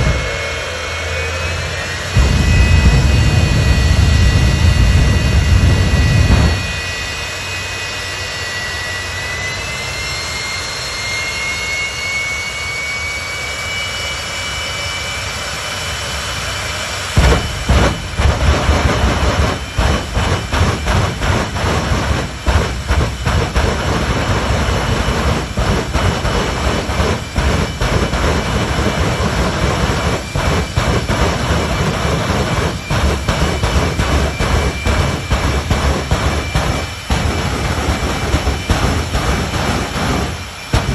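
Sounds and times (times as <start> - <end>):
jet-like turbine whine: 0.0 - 40.9
choppy low rumble with gusts: 2.1 - 7.3, 17.1 - 40.9.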